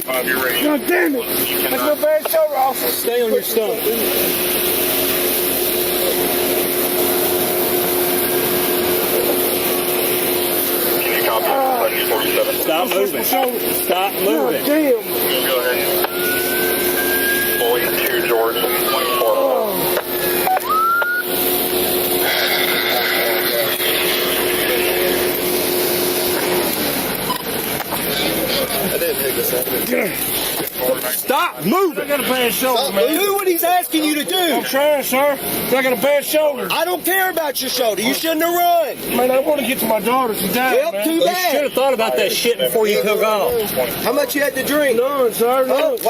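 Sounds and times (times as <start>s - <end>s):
vehicle engine running: 0.0s - 33.6s
mechanical drone and hiss: 0.0s - 46.0s
road noise: 0.0s - 46.0s.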